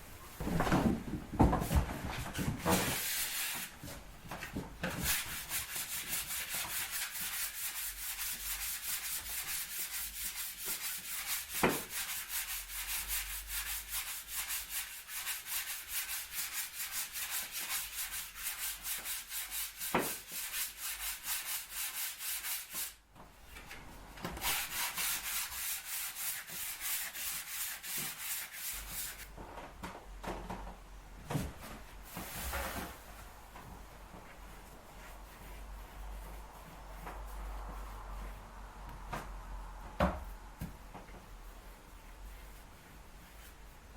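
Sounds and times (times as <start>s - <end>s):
hand sanding strokes: 2.7s - 3.8s, 5.0s - 23.0s, 24.4s - 29.3s, 34.4s - 38.6s, 41.3s - 43.9s.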